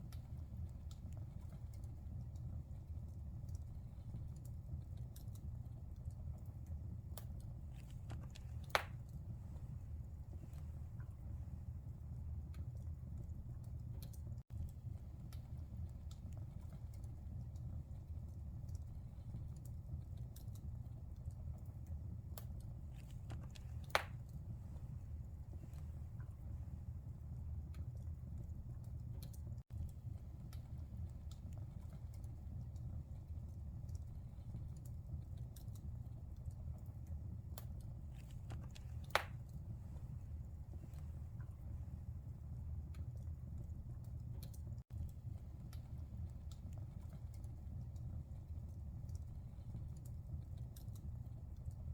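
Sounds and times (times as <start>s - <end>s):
low rumble of flames: 0.0s - 51.9s
wood fire crackling: 0.0s - 51.9s
fire pop: 7.2s - 9.2s, 22.4s - 24.4s, 37.6s - 39.6s.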